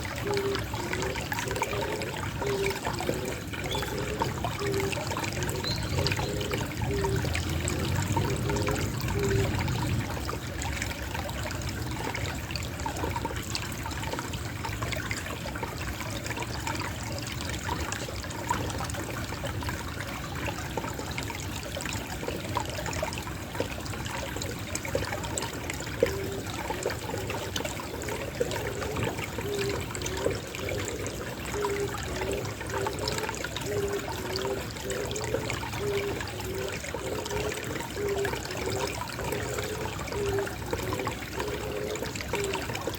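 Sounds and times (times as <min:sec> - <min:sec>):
water trickling: 0:00.0 - 0:42.9
dove cooing: 0:00.1 - 0:10.0, 0:26.0 - 0:42.9.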